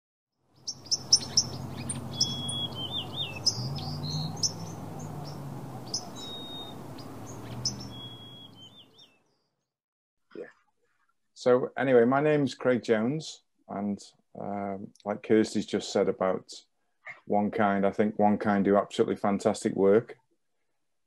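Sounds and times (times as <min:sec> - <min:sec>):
whistled bird trill: 0:00.6 - 0:09.2
birds chirping: 0:00.6 - 0:09.5.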